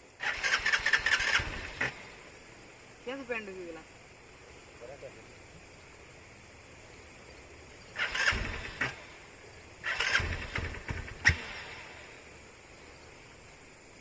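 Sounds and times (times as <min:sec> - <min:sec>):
motorcycle engine cranking: 0:00.2 - 0:02.0, 0:08.0 - 0:09.0, 0:09.8 - 0:11.8.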